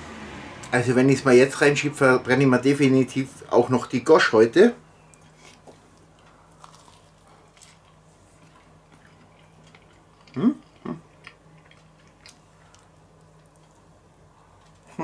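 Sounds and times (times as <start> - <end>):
man chewing food: 5.0 - 15.0.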